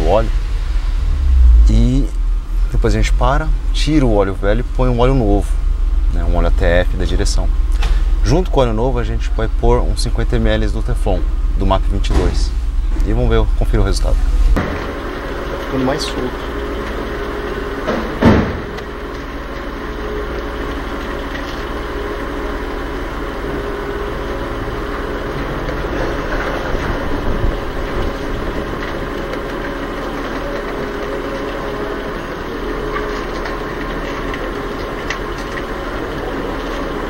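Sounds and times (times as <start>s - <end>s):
car engine idling: 0.0s - 37.0s
loud sound falling in pitch: 0.9s - 2.2s.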